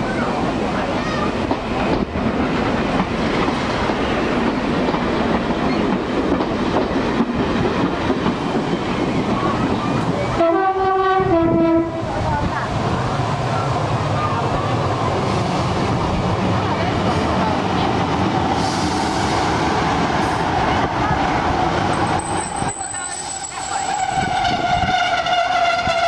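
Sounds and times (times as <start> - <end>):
train wheels rumbling on rails: 0.0 - 26.0
two-note train horn: 10.4 - 12.0, 24.0 - 26.0.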